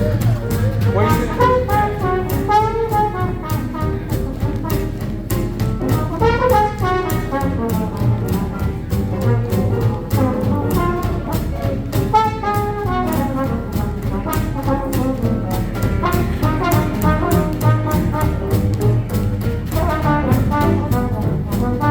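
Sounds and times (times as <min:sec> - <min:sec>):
swing jazz band playing: 0:00.0 - 0:21.9
brass horn solo: 0:01.0 - 0:04.1, 0:06.1 - 0:09.6, 0:12.1 - 0:15.2, 0:15.9 - 0:18.6, 0:19.8 - 0:21.9.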